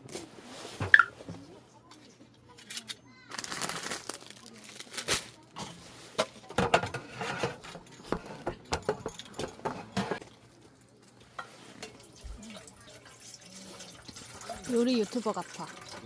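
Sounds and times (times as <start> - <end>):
metal utensil clinking in a pot: 5.6 - 10.4, 11.2 - 16.0.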